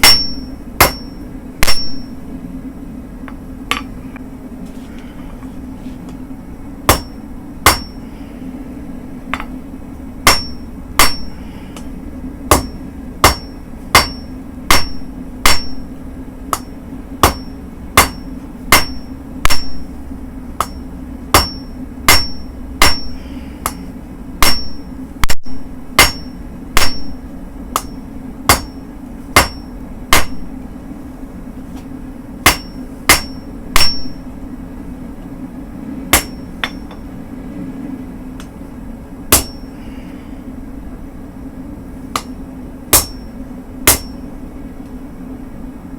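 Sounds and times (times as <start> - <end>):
anvil ringing: 0.0 - 2.2, 6.9 - 8.0, 10.3 - 11.4, 12.5 - 15.9, 16.6 - 19.9, 20.6 - 23.8, 24.4 - 24.9, 26.0 - 27.2, 29.4 - 30.4, 32.5 - 34.2, 36.2 - 37.0, 39.3 - 39.7
hammer striking steel on anvil: 0.0 - 2.2, 3.7 - 4.0, 6.9 - 8.0, 9.3 - 9.6, 10.2 - 11.9, 12.5 - 15.9, 16.5 - 20.0, 20.6 - 28.8, 29.4 - 30.5, 32.4 - 34.2, 36.1 - 37.1, 39.3 - 39.7, 42.1 - 44.3
steady low hum: 0.0 - 45.9.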